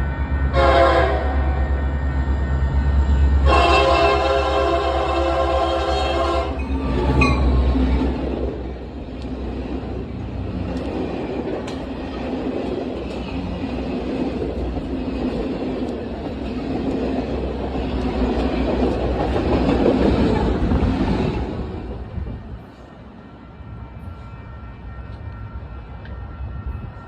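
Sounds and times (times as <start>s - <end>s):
train wheels rumbling on rail: 0.0s - 27.0s
faint rail clicks: 10.1s - 17.2s, 25.0s - 26.2s.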